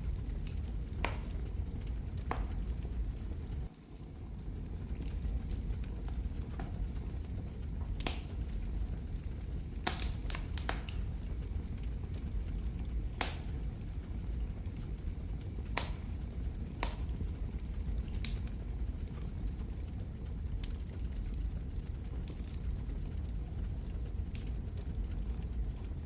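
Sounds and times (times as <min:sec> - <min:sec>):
sharp pops of fire: 0:00.0 - 0:04.0, 0:04.7 - 0:19.8
low rumble of burning: 0:00.0 - 0:26.0
wood fire crackling: 0:00.0 - 0:26.0.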